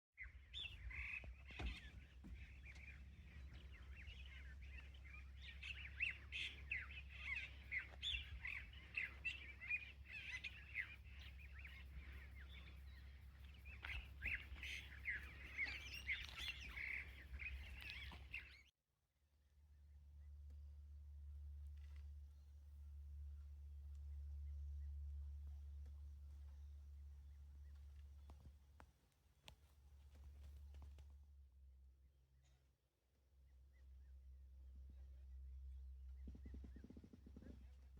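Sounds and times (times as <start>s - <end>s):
birds chirping chorus: 0.2s - 18.7s
low steady hum: 0.4s - 18.6s, 19.5s - 32.6s, 33.2s - 37.9s.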